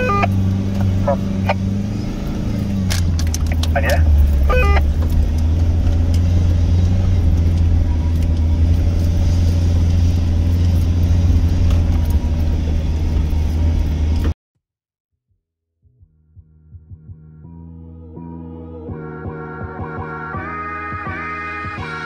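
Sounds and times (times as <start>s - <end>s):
vehicle engine droning inside cabin: 0.0s - 14.4s.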